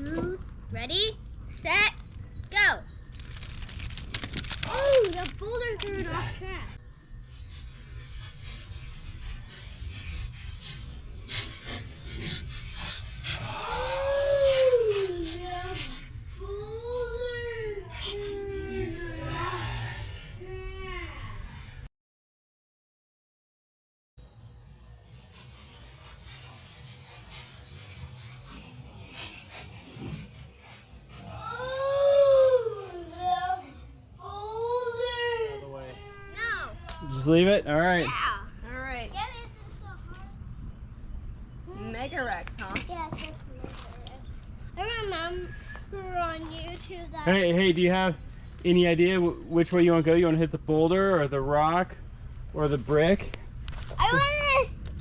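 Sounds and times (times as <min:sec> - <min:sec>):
rough scraping and rubbing: 0:07.0 - 0:16.4, 0:24.2 - 0:36.7
low rumble: 0:24.2 - 0:36.8.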